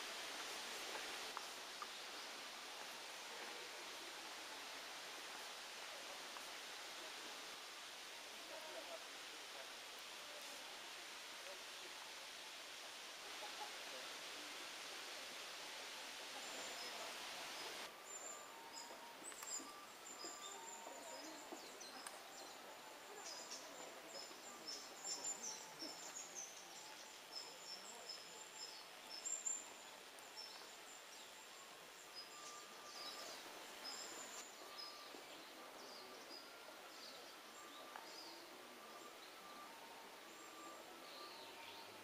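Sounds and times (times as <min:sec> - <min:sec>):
faint steady hiss: 0:00.0 - 0:42.0
small birds chirping: 0:16.4 - 0:39.6.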